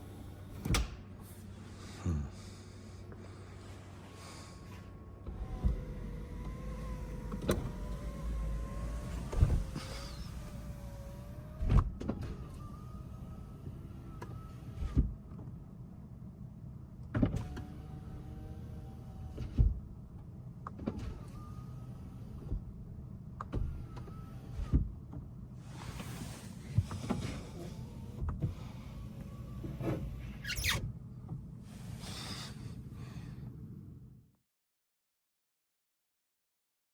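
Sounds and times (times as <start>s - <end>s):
power window motor whirring: 5.2s - 15.1s, 17.2s - 19.8s, 20.8s - 22.9s, 23.5s - 24.9s, 25.6s - 30.9s.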